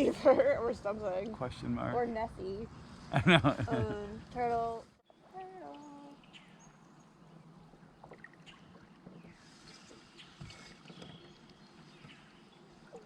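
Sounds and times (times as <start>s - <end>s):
water dripping: 5.3s - 13.0s
paddle strokes in water: 7.6s - 13.0s.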